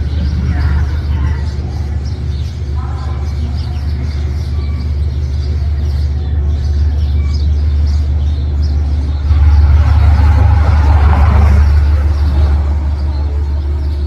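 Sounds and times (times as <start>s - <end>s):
train passing: 7.6s - 14.0s
rushing wheels and air: 9.0s - 14.0s.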